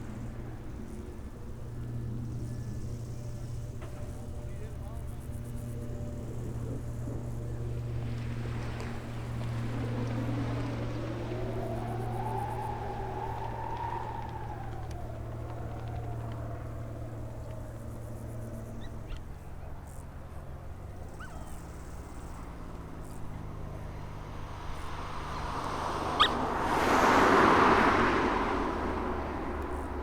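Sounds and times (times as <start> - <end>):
vehicle passing close: 0.0 - 19.2, 21.0 - 30.0
aircraft engine droning: 0.0 - 30.0
faint bird chirps: 11.5 - 20.0, 21.0 - 22.3, 26.1 - 26.4.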